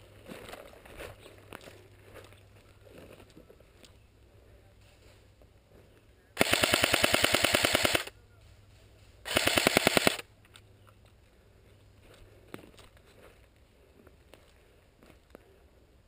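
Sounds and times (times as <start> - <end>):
airsoft rifle full-auto bursts: 6.4 - 8.1, 9.2 - 10.2.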